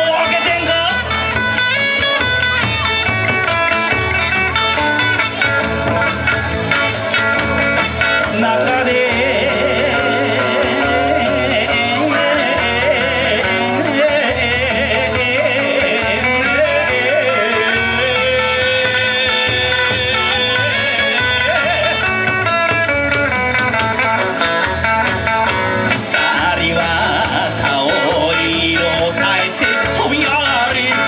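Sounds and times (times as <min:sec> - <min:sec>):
electric guitar phrases: 0:00.0 - 0:31.0
steady beat: 0:00.0 - 0:31.0
wavering melodic line: 0:03.8 - 0:24.4.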